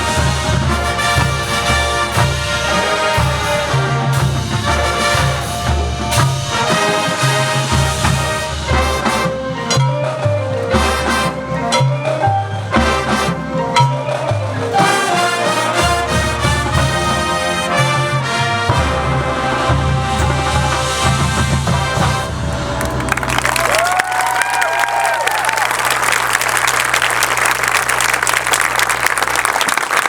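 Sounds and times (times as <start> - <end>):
marching band playing: 0.0 - 30.0.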